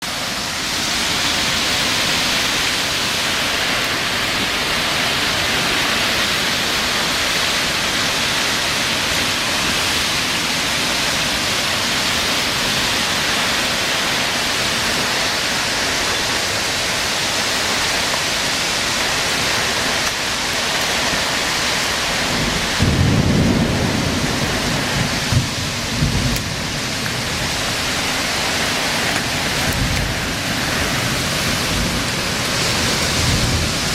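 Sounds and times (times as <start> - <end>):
heavy rain pouring: 0.0 - 33.9
thunder rumbling and cracking: 21.7 - 33.9.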